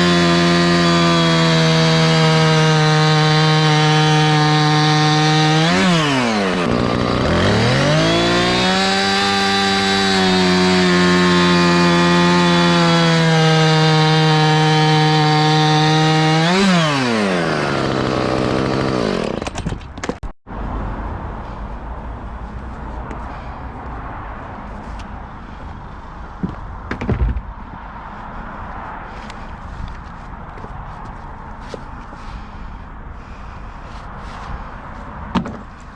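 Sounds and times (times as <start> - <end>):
chainsaw cutting log: 0.0 - 20.2.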